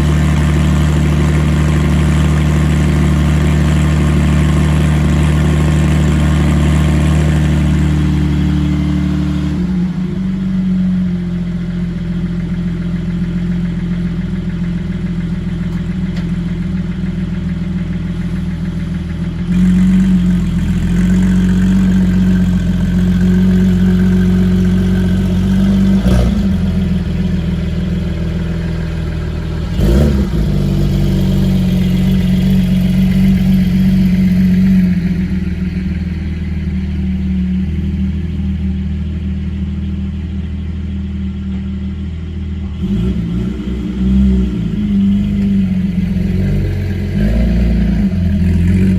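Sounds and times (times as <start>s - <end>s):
sports car engine running: 0.0s - 48.9s.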